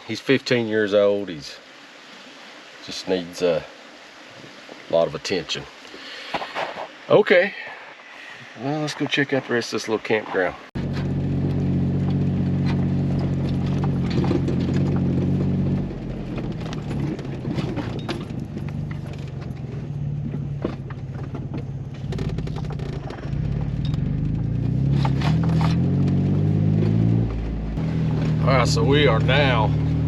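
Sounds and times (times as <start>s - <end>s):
car engine running at low speed: 10.8s - 30.0s.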